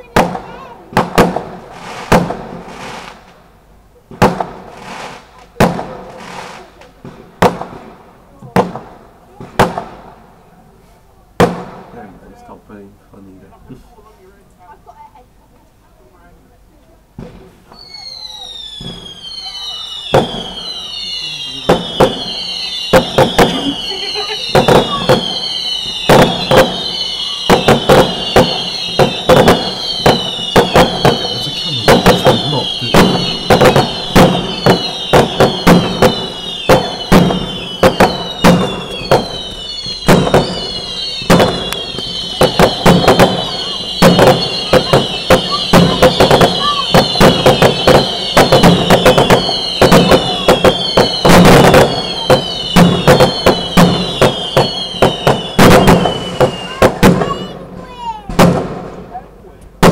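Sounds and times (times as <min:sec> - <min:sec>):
fireworks bangs: 0:00.0 - 0:10.4, 0:11.4 - 0:12.6, 0:17.2 - 0:59.9
high-pitched falling whistle: 0:17.7 - 0:57.6.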